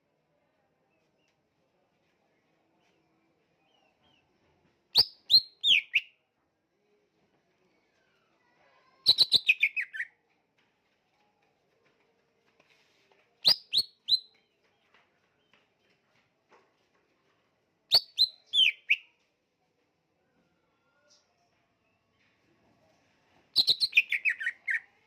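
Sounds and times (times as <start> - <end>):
bird sharp chirps: 23.6 - 24.9.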